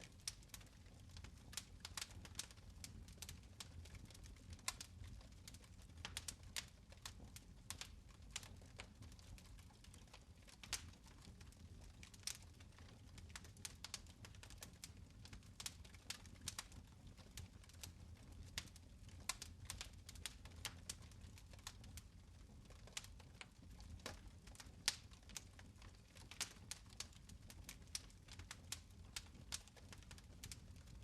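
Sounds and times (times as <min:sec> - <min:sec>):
fire crackling and popping: 0:00.0 - 0:31.0
fire low rumble: 0:00.0 - 0:31.0.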